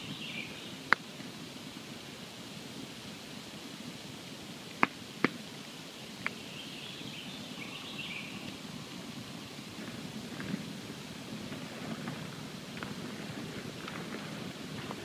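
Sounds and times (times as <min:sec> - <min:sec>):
campfire hissing: 0:00.0 - 0:15.0
sharp crackling pops: 0:00.8 - 0:01.4, 0:04.6 - 0:06.4, 0:09.5 - 0:15.0.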